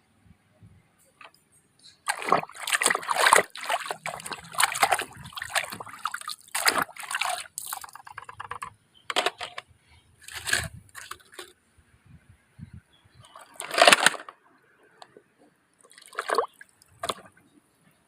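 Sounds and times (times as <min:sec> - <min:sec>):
water sloshing and splashing: 0:02.0 - 0:09.4, 0:10.2 - 0:11.5, 0:13.2 - 0:14.3, 0:15.8 - 0:17.5
water trickling: 0:02.1 - 0:08.4.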